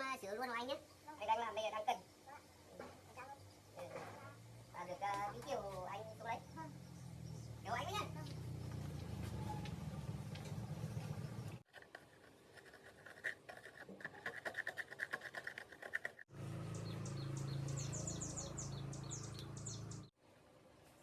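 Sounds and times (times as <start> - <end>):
birds chirping: 0.7 - 11.6, 16.4 - 20.1.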